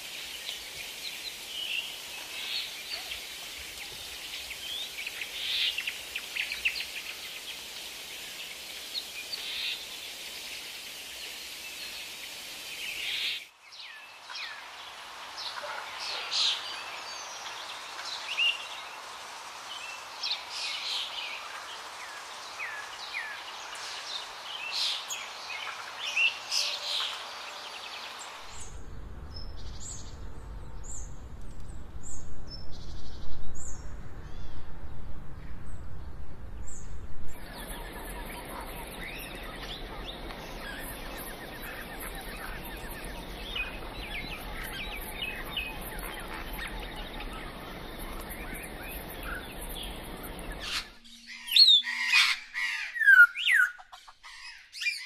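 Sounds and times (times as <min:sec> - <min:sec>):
high insect-like hiss: 0:00.0 - 0:28.7, 0:37.4 - 0:51.0
low rumble: 0:28.5 - 0:50.7
birds chirping: 0:36.7 - 0:55.0.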